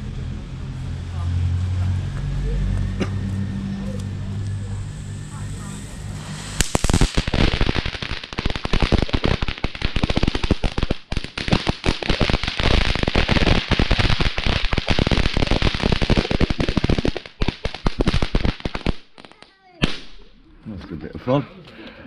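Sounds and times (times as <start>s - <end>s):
firework crackling: 0.0s - 20.6s
firework hiss: 3.2s - 20.3s.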